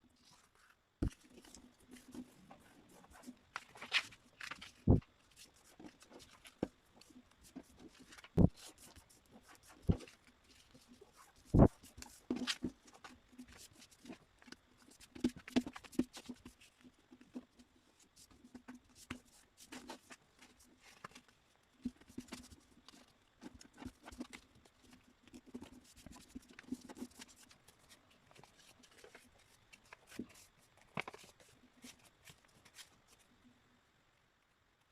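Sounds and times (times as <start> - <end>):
paper rustling and crackling: 0.2 - 6.7, 25.4 - 33.2.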